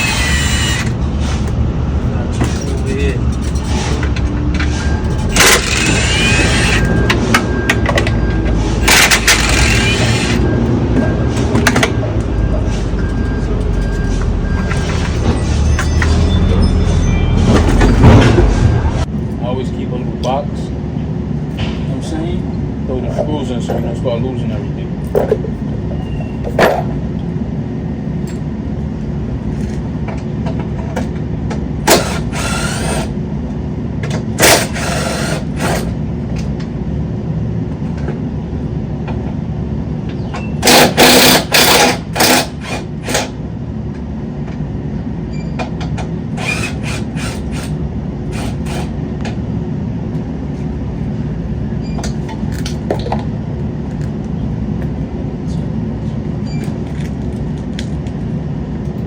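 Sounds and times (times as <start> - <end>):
power tool bursts: 0.0 - 1.0, 5.3 - 7.0, 8.7 - 10.4, 31.9 - 33.1, 34.4 - 35.9, 40.6 - 43.3, 46.4 - 47.7
steady low rumble: 0.0 - 26.1.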